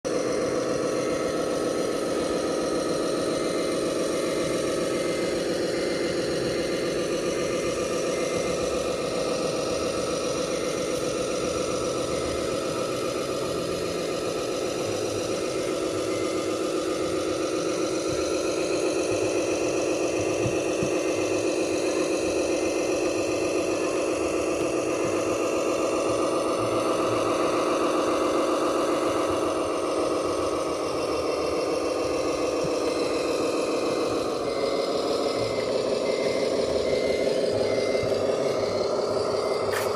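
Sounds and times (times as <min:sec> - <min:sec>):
simulated truck engine running: 0:00.0 - 0:39.9.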